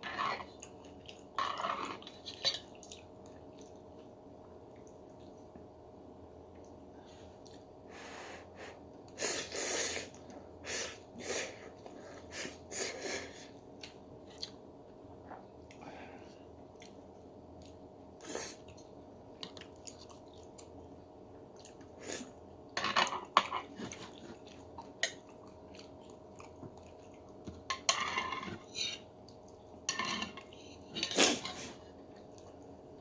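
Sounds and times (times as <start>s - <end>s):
chewing: 0.4s - 5.6s, 13.8s - 14.6s, 16.7s - 17.8s, 18.4s - 22.0s, 23.2s - 27.6s.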